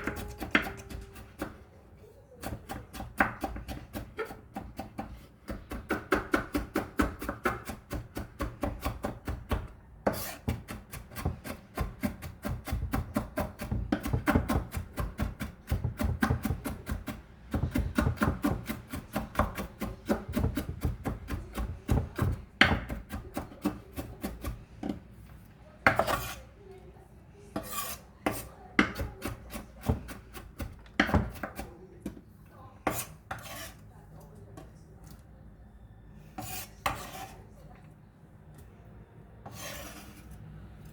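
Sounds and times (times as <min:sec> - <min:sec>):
knife chopping on cutting board: 0:00.0 - 0:01.6, 0:02.5 - 0:25.0, 0:27.6 - 0:32.2
knife scraping cutting board: 0:10.0 - 0:11.6, 0:25.9 - 0:26.5, 0:27.6 - 0:30.4, 0:32.9 - 0:33.8, 0:36.4 - 0:37.4, 0:39.4 - 0:40.4.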